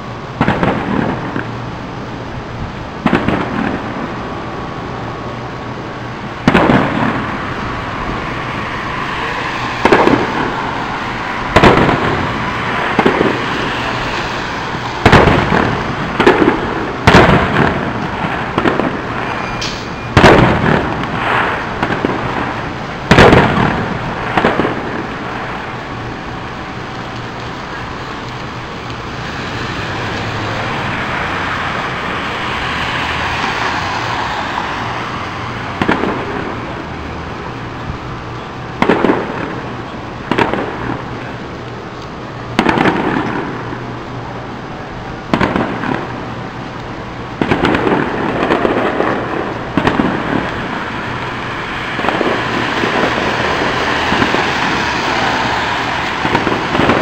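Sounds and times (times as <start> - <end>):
steady hiss and rumble: 0.0 - 57.0
firework shells bursting: 3.0 - 4.2, 6.4 - 32.0, 35.7 - 36.9, 38.8 - 41.4, 42.5 - 43.8, 45.3 - 57.0.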